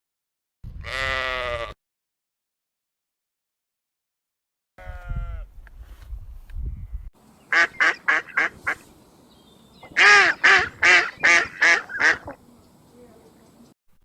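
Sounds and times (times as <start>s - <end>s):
waterfowl nasal calls: 7.5s - 8.8s, 9.8s - 12.4s.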